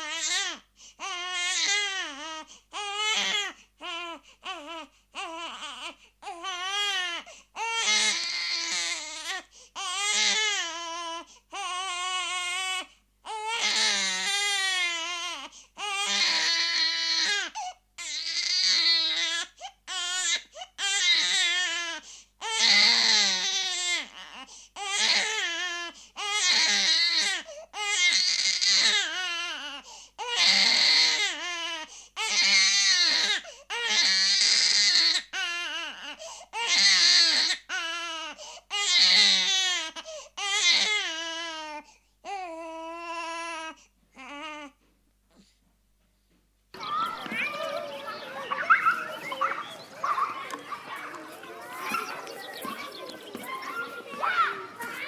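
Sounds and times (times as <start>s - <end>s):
baby crying: 13.4s - 21.7s, 46.8s - 55.0s.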